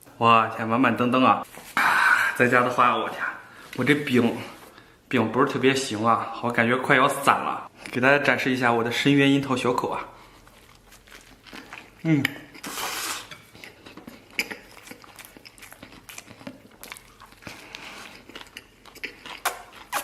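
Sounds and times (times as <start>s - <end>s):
man chewing food: 10.1s - 20.0s
man biting into bun: 10.7s - 20.0s.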